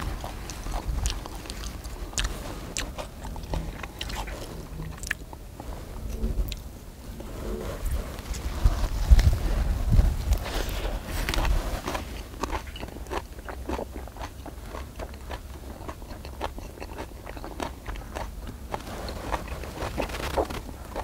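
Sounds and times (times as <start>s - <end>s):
wet crunchy chewing: 0.0s - 6.7s, 7.4s - 21.0s
low rumble: 0.0s - 14.7s.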